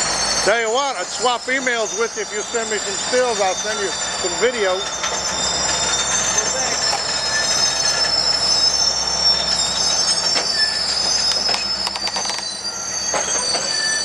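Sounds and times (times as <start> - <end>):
train wheels squealing on rails: 0.0 - 14.0
wheels clicking over track: 9.4 - 14.0.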